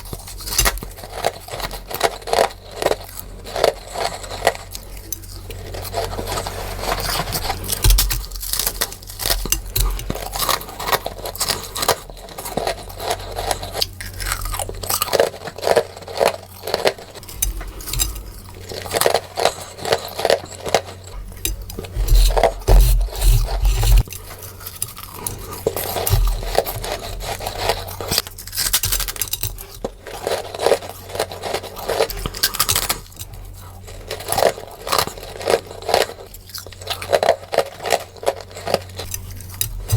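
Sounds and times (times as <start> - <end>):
person chewing frost crunching: 0.0 - 39.9.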